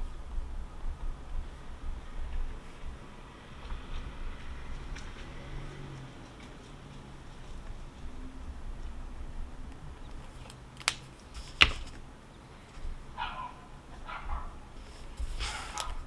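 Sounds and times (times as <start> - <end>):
dog barking: 13.2 - 14.7, 15.4 - 16.0.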